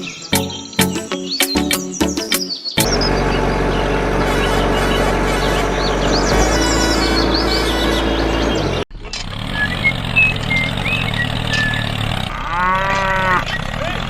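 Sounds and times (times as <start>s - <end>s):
music: 0.0s - 3.0s
bird chirps: 0.0s - 8.8s, 9.5s - 12.0s
cow mooing: 12.3s - 13.6s.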